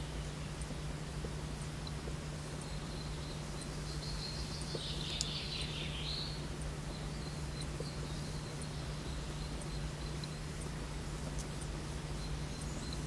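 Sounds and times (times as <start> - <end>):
faint high whine: 0.0 - 13.0
bird calling: 2.6 - 10.6.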